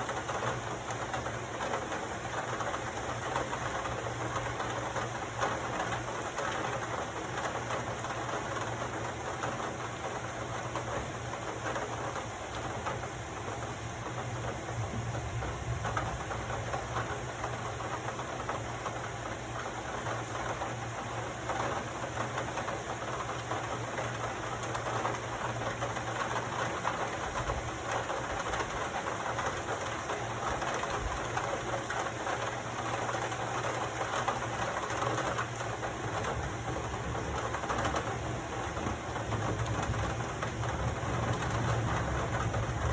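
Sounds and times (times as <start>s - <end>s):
heavy rain falling: 0.0s - 42.9s.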